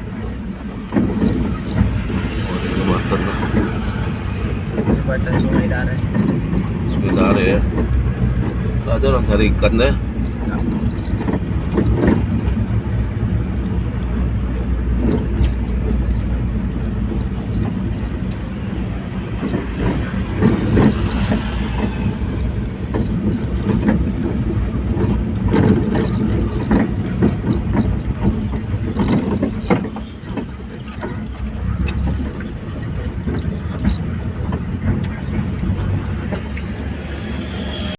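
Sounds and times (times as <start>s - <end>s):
car engine: 0.0s - 37.9s
road rumble: 0.0s - 37.9s
knocks from bumps: 0.9s - 13.1s, 19.2s - 36.7s.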